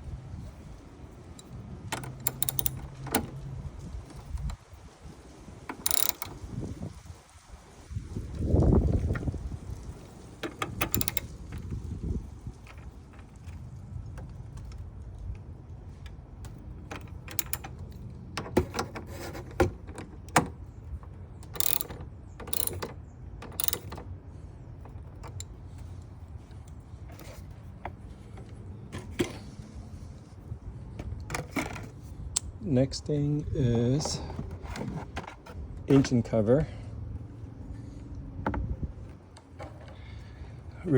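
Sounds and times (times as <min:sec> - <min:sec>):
ratchet wrench clicking: 0:01.4 - 0:03.5, 0:05.7 - 0:06.4, 0:10.6 - 0:11.7, 0:17.0 - 0:18.0, 0:21.4 - 0:24.0.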